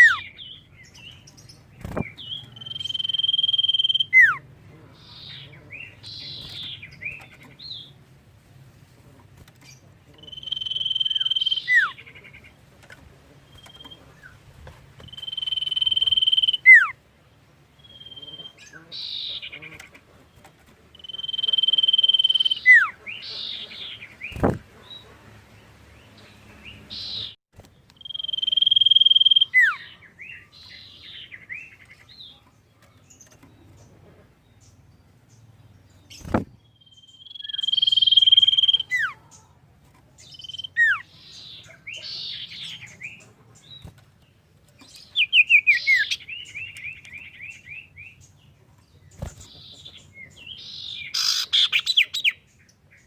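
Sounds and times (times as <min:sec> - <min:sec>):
bird singing whistled phrases: 0:02.4 - 0:04.4, 0:10.3 - 0:12.0, 0:15.1 - 0:16.9, 0:21.0 - 0:22.9, 0:28.0 - 0:29.9, 0:36.8 - 0:39.2, 0:40.3 - 0:41.0.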